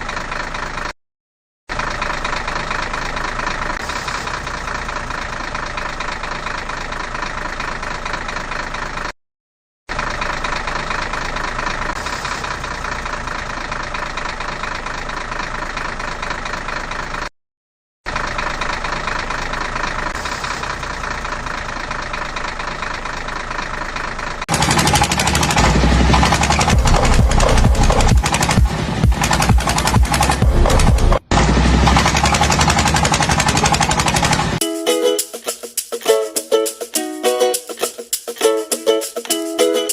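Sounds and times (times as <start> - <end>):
vehicle engine running: 0.0 - 1.0, 1.7 - 9.2, 9.9 - 17.3, 18.1 - 34.6
music with rapid hits: 24.8 - 33.3.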